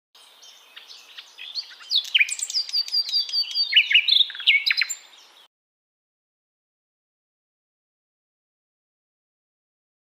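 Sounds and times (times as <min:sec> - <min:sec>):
bird singing: 0:00.2 - 0:05.5.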